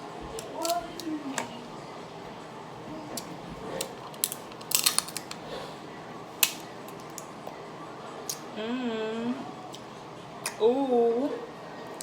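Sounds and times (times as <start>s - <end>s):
sharp clicks and cracks of eating: 3.1s - 5.4s, 6.4s - 7.6s, 8.2s - 8.5s, 9.7s - 10.6s.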